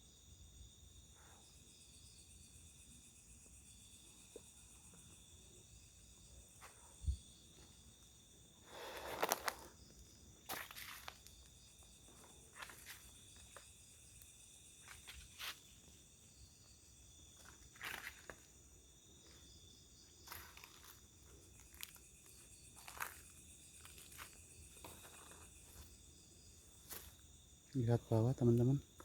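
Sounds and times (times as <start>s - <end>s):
crickets chirping: 0.0s - 29.0s
footsteps on the ground: 8.8s - 13.8s, 14.8s - 15.9s, 17.3s - 18.5s, 20.2s - 26.0s, 26.8s - 27.2s.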